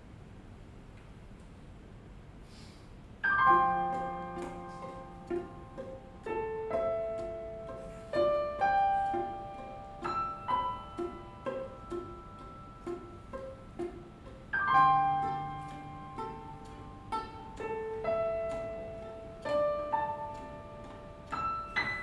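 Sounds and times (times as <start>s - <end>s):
piano notes and chords: 3.2s - 22.0s
pizzicato string notes: 3.2s - 22.0s.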